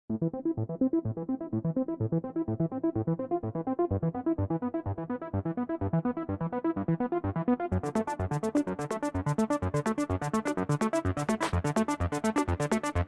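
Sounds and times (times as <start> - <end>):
steady electronic beat: 11.2 - 11.7.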